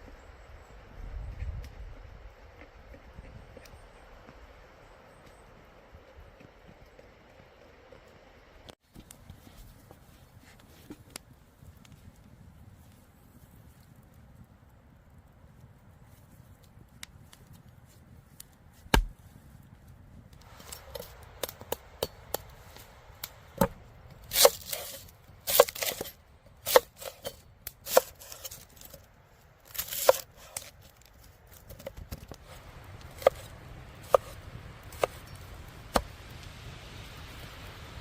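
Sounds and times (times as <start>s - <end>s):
knife chopping on cutting board: 18.9s - 19.1s.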